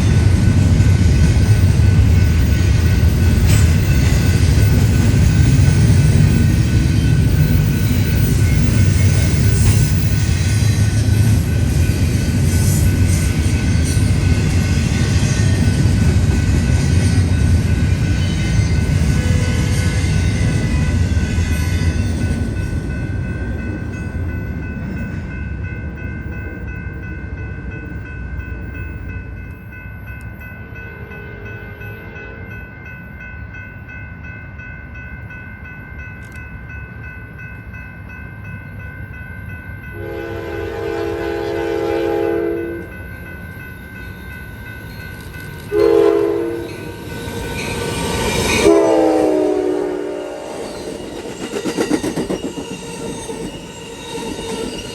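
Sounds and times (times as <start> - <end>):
low train rumble: 0.0 - 54.9
train horn blasts: 40.0 - 42.9, 45.7 - 47.7, 48.5 - 50.8
steady high tones: 42.9 - 54.9.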